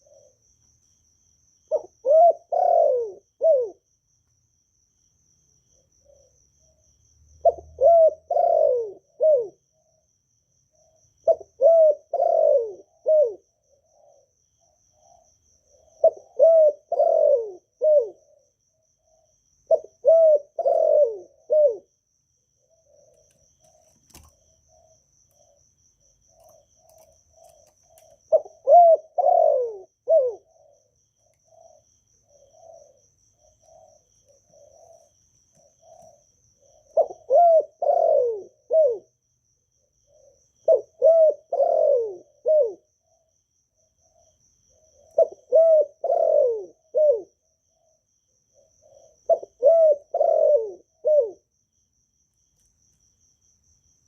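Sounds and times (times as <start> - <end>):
dove cooing: 0.0 - 0.5, 1.7 - 3.9, 5.8 - 6.4, 7.4 - 10.0, 10.8 - 22.0, 22.6 - 39.2, 39.8 - 43.3, 44.1 - 51.5.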